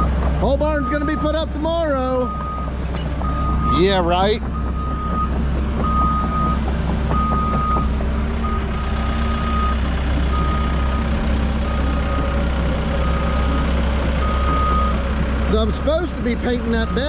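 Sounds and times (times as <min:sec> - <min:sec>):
diesel engine rumble: 0:00.0 - 0:17.0
backup alarm beeping: 0:04.6 - 0:12.4, 0:13.0 - 0:15.0.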